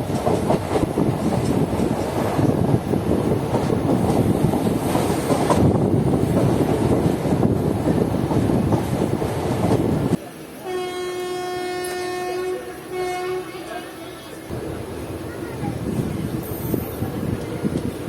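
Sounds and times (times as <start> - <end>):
train rumbling over rails: 0.0 - 18.0
train horn blast: 10.6 - 13.8.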